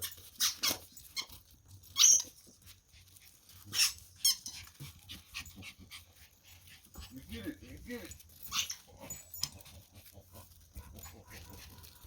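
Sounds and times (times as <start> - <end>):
small dog whining: 0.0 - 2.5, 3.6 - 6.3, 8.4 - 9.6.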